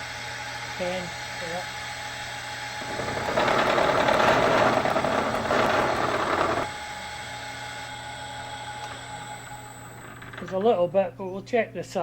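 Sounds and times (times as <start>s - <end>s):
machine humming: 2.8s - 6.7s
milling machine cutting metal: 2.8s - 6.7s.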